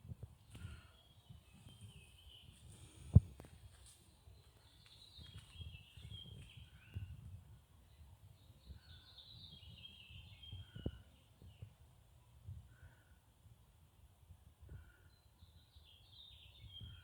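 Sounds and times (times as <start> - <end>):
faint birdsong: 0.0 - 17.0.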